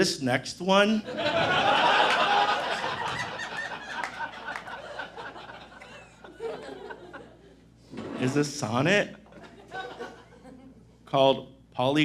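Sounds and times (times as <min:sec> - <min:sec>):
audience laughing: 0:01.0 - 0:08.6, 0:09.3 - 0:10.9.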